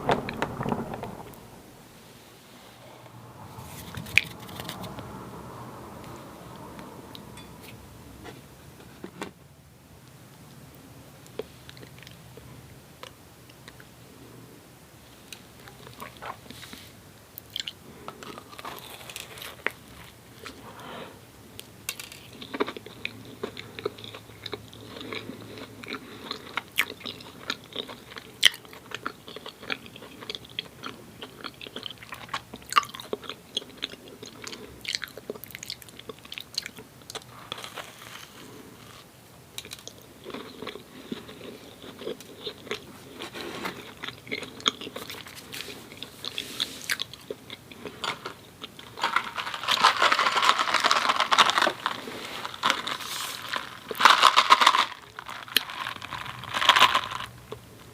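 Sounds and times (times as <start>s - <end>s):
chewing and biting doughnuts: 22.2s - 57.7s.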